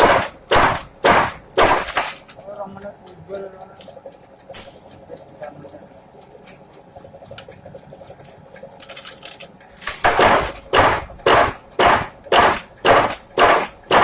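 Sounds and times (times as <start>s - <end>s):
loud heavy impact: 0.0s - 2.3s, 9.9s - 14.0s.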